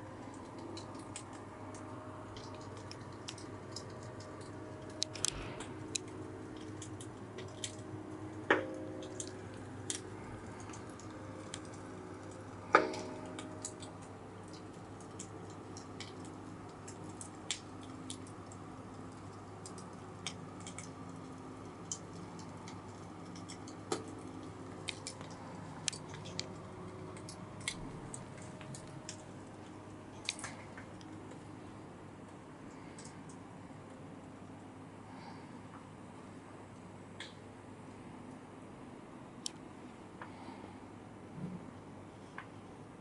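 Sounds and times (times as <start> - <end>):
small clicks and ticks: 0.0 - 36.0, 36.7 - 38.5, 39.4 - 40.5
low room hum: 0.0 - 43.0.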